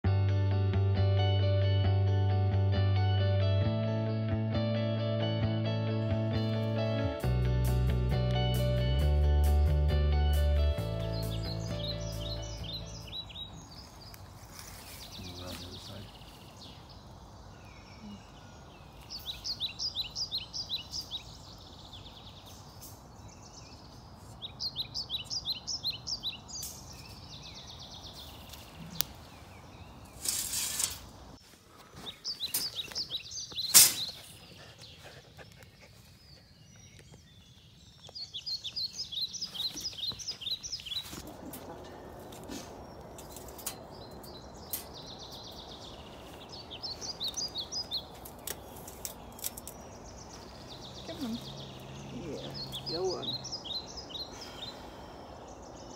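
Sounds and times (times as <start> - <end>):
woodland background: 0.8 - 55.9
songbird singing: 6.4 - 55.9
rustling: 13.7 - 16.6, 28.1 - 34.9
metallic clank of wire cage: 33.7 - 34.1.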